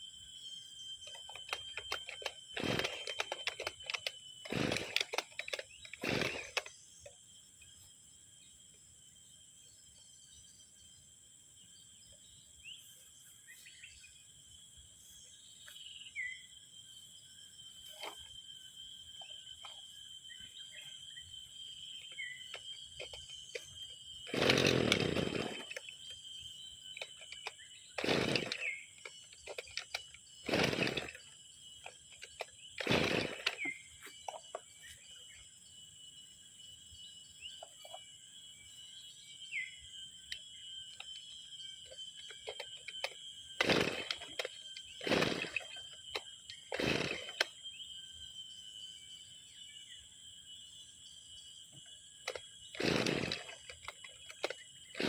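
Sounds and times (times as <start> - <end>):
high insect drone: 0.0 - 55.0
brush cutter pull-starting: 1.0 - 7.2, 21.7 - 35.1, 40.2 - 47.8, 51.7 - 55.0.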